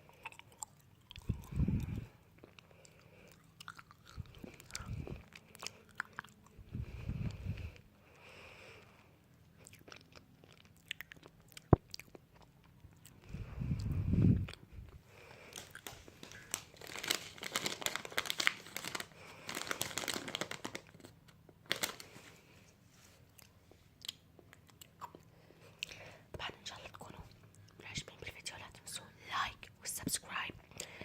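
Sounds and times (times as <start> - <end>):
crunching and chewing: 0.0 - 6.6, 9.5 - 22.1, 23.3 - 26.0.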